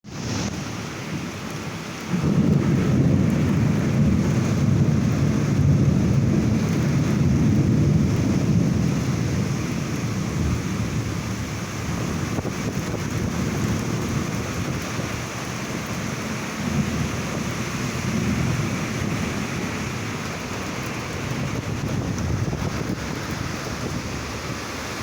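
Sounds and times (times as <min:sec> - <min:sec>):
heavy rain hissing: 0:00.0 - 0:25.0
thunder rumbling: 0:00.2 - 0:25.0.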